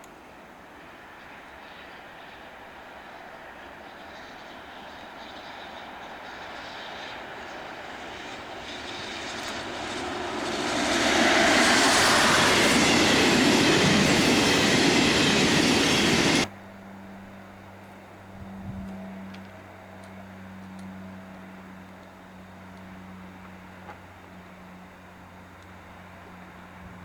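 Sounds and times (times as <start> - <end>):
train passing: 0.8 - 16.5.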